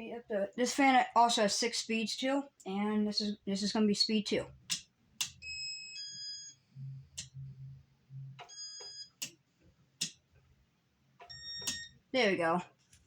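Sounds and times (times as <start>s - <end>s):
electronic beeps: 5.4s - 9.3s, 11.3s - 12.0s
button clicks: 11.2s - 11.9s.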